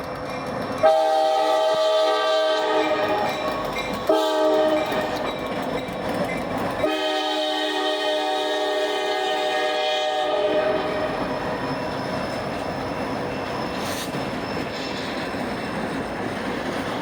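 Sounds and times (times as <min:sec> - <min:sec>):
passing train rumble: 0:00.0 - 0:17.0
locomotive air horn blasts: 0:00.8 - 0:03.3, 0:04.1 - 0:05.2, 0:06.8 - 0:11.2.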